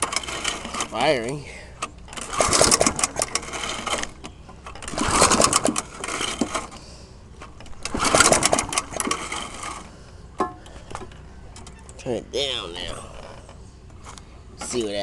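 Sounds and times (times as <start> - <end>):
lawnmower engine cranking: 0.0 - 12.0.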